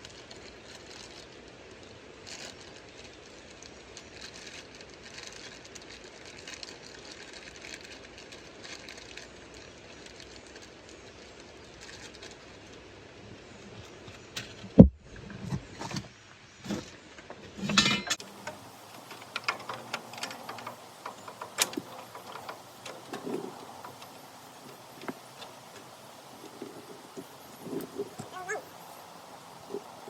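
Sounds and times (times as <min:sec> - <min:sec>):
metal tools clinking: 0:17.6 - 0:25.9.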